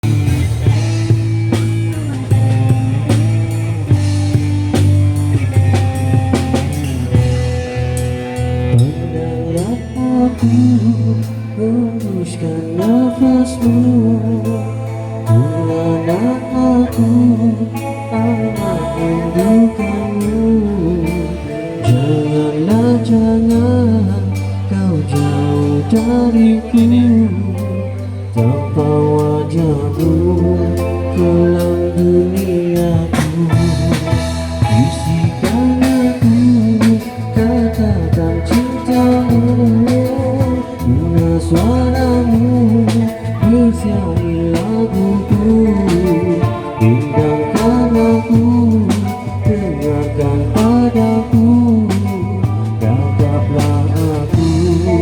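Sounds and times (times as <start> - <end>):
drum kit strikes: 0.0 - 8.9
rock ballad band playing: 0.0 - 55.0.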